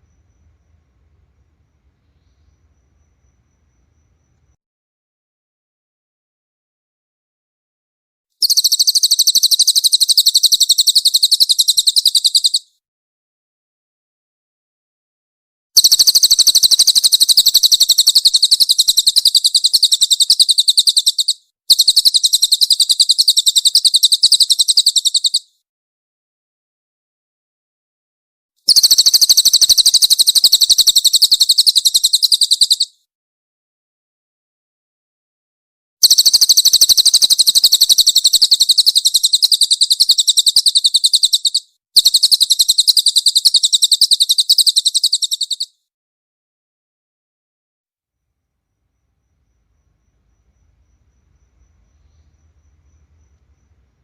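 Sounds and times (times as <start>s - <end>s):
songbird trilling: 8.4s - 12.6s, 15.8s - 25.5s, 28.7s - 32.9s, 36.0s - 45.7s, 49.8s - 54.0s.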